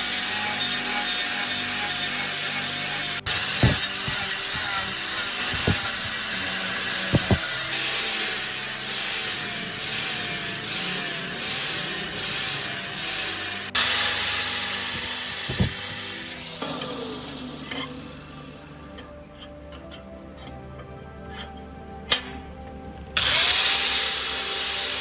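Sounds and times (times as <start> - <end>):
sanding scrape on steel blade: 0.1 - 16.5.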